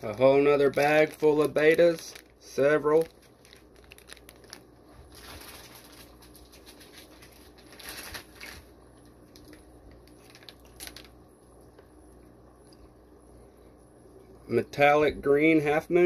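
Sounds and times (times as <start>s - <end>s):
plastic bags rustling: 0.0s - 11.2s.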